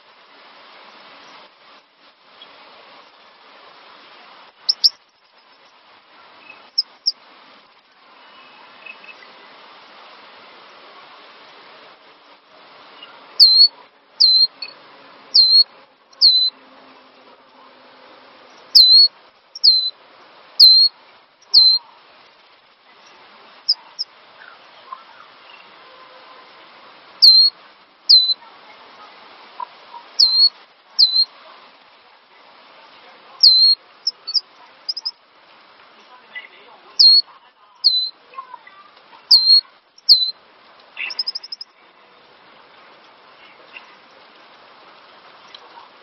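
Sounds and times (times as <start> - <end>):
faint hiss: 0.0 - 46.0
bird whistled calls: 4.7 - 5.0, 13.0 - 14.8, 15.4 - 16.6, 18.7 - 19.9, 20.6 - 21.8, 27.2 - 27.5, 28.1 - 28.4, 30.2 - 31.3, 33.4 - 35.1, 37.0 - 37.2, 37.8 - 38.2, 39.3 - 40.4, 41.0 - 41.6.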